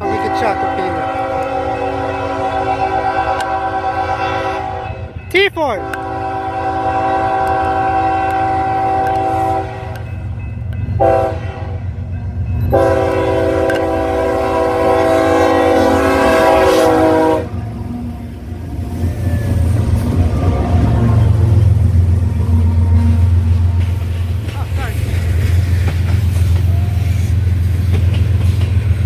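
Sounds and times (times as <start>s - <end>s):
locomotive air horn blasts: 0.0s - 5.1s, 5.8s - 10.1s, 11.0s - 11.9s, 12.7s - 17.8s
train rumbling past: 0.0s - 29.0s.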